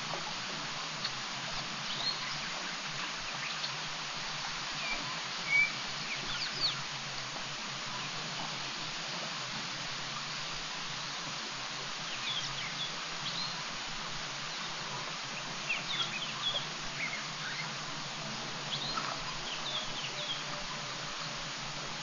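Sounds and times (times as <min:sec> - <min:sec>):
steady hiss: 0:00.0 - 0:22.0
small birds chirping: 0:00.9 - 0:03.8, 0:04.7 - 0:07.0, 0:12.0 - 0:13.7, 0:14.4 - 0:17.9, 0:18.6 - 0:22.0.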